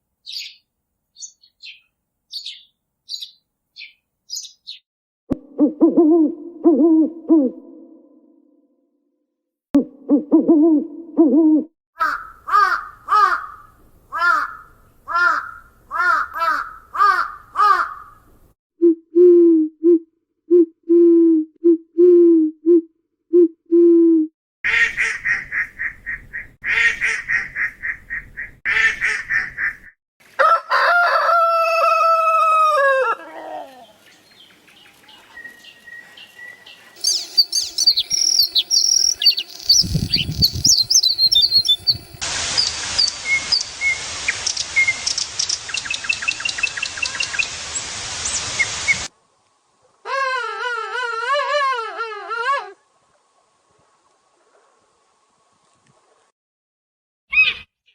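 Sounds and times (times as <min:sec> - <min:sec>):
high bird chirping song: 0:00.2 - 0:04.8, 0:33.8 - 0:47.6
long falling bird call: 0:31.6 - 0:49.1
short sharp bird calls: 0:33.6 - 0:42.0
fast rattling bird calls: 0:37.0 - 0:42.1.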